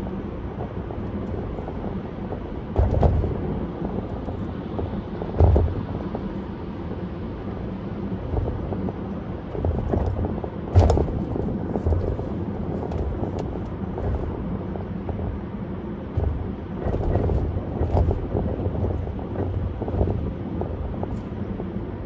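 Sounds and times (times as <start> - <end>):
road and tyre noise: 0.0 - 22.0.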